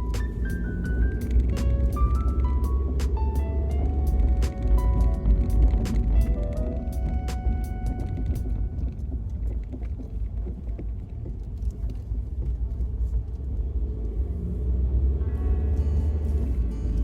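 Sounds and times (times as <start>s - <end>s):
music: 0.0s - 9.8s, 15.2s - 17.0s
car driving rumble: 0.0s - 17.0s.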